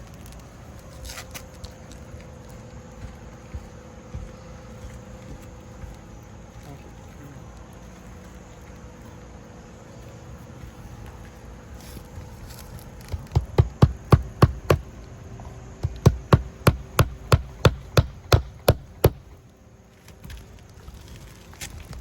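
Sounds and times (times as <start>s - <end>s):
hammer blows: 13.1s - 14.9s, 15.8s - 19.4s.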